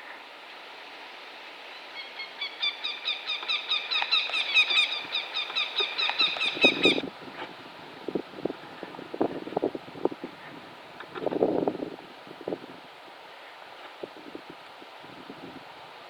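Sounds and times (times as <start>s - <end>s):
goshawk alarm call: 2.0s - 7.0s.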